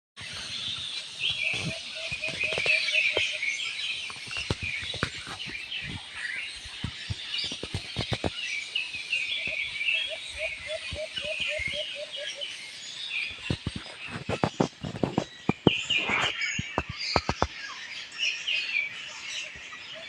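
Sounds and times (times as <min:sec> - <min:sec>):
small birds chirping: 0:00.2 - 0:20.0
lower bird call: 0:01.2 - 0:06.0, 0:09.2 - 0:12.5.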